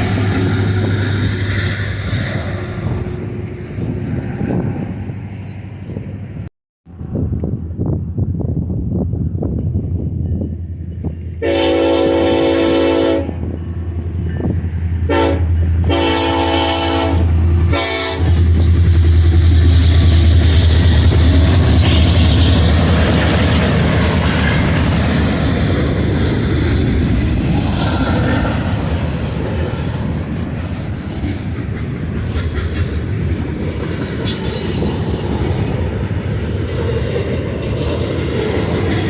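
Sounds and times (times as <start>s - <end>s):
locomotive engine drone: 0.0s - 11.5s, 12.1s - 39.0s
train wheel and rail noise: 0.0s - 39.0s
locomotive chime horn blasts: 11.4s - 13.4s, 15.1s - 18.6s.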